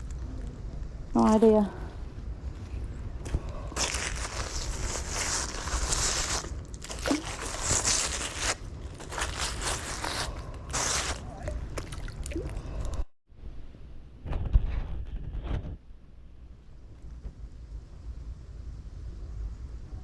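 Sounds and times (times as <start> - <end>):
scraping and crunching: 3.2 - 12.0.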